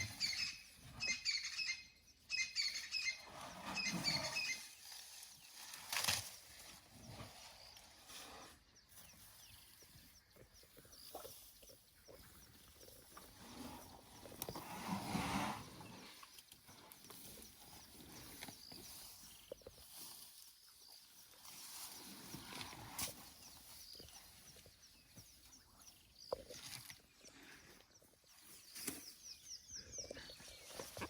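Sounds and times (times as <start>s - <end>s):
elephant tearing and chewing grass: 3.6s - 7.9s.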